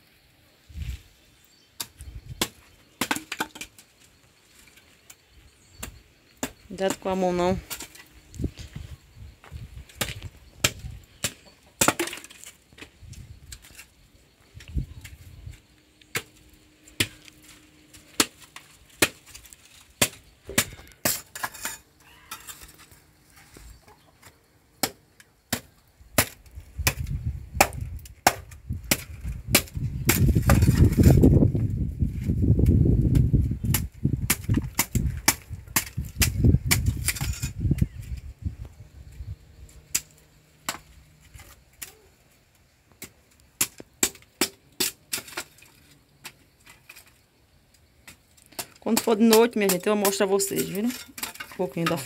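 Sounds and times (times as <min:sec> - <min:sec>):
firewood chopping: 0:01.8 - 0:03.8, 0:09.9 - 0:12.9, 0:16.1 - 0:21.6, 0:24.2 - 0:30.9, 0:33.2 - 0:37.3, 0:39.9 - 0:42.0, 0:42.9 - 0:45.7.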